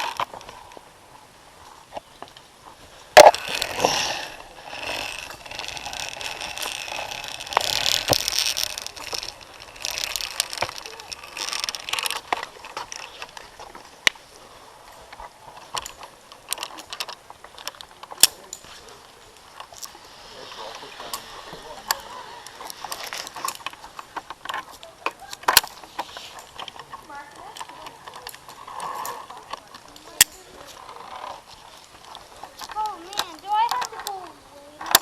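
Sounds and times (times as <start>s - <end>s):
gear rolling along cable: 0.0s - 35.0s.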